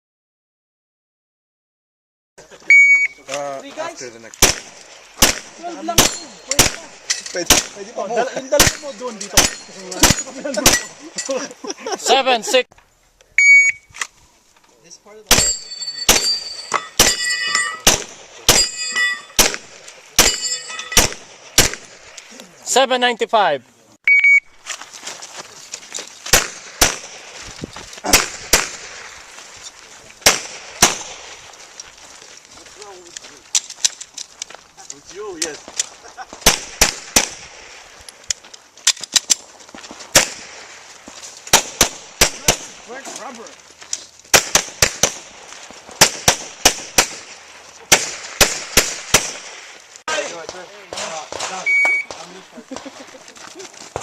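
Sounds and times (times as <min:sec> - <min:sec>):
shot timer beep: 0:02.7 - 0:03.2, 0:13.4 - 0:13.9, 0:24.1 - 0:24.5, 0:51.7 - 0:52.1
handgun shots: 0:04.4 - 0:07.8, 0:17.0 - 0:18.8, 0:19.4 - 0:22.0, 0:26.3 - 0:27.2, 0:28.1 - 0:28.9, 0:47.9 - 0:49.5
gunshots: 0:04.4 - 0:11.0, 0:15.3 - 0:22.2, 0:26.3 - 0:27.4, 0:28.0 - 0:29.3, 0:30.2 - 0:31.4, 0:36.3 - 0:38.0, 0:40.1 - 0:40.8, 0:41.5 - 0:43.0, 0:44.3 - 0:52.4.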